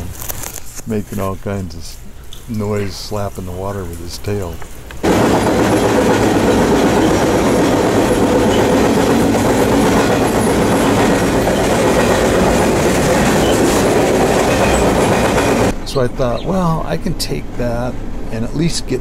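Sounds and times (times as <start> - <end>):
freight train wheels on rails: 4.5 - 15.8.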